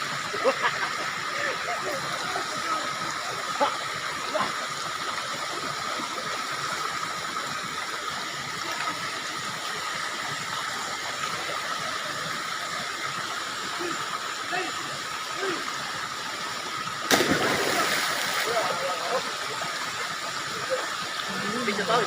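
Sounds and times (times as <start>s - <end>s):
spring water flowing: 0.0s - 22.0s.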